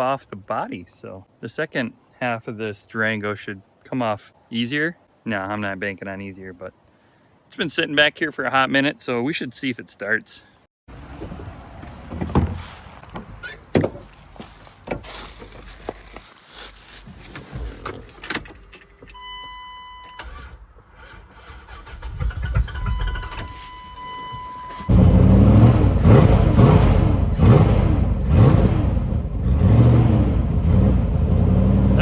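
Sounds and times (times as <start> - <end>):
car engine cranking and revving: 20.2 - 32.0.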